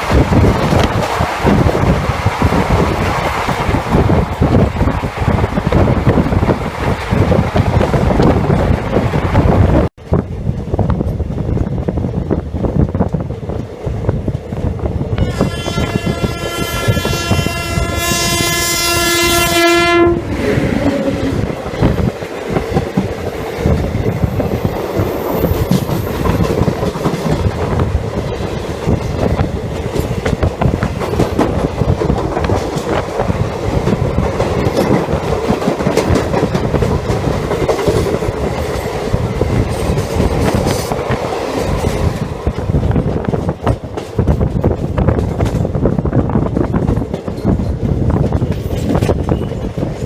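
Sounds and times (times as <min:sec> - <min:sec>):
train coach rumble: 0:00.0 - 0:50.0.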